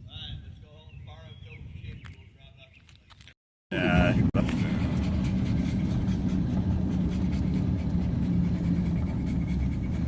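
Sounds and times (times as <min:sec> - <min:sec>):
engine and road rumble in car: 0:03.8 - 0:10.0.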